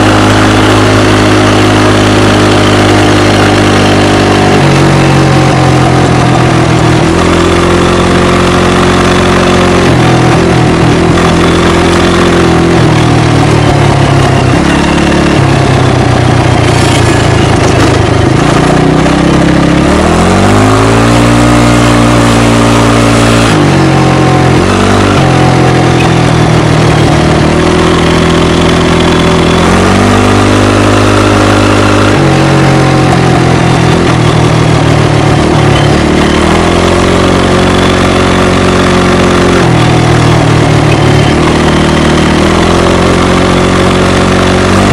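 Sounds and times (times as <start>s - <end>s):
loud atv engine revving: 0.0s - 44.9s.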